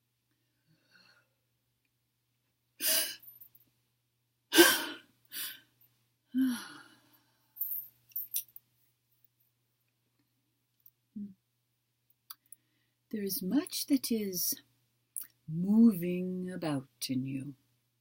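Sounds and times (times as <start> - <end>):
person breathing deeply and sighing: 6.3 - 7.6.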